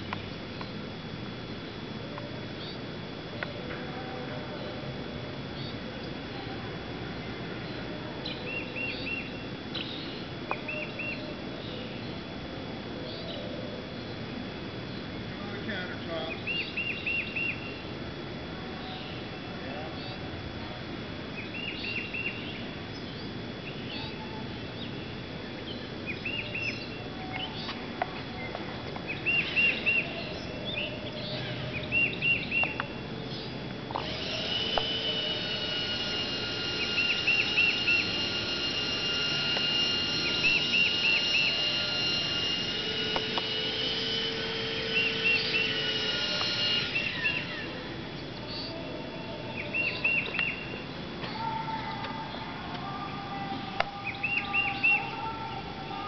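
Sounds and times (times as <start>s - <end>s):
steady high whine: 0.0s - 56.0s.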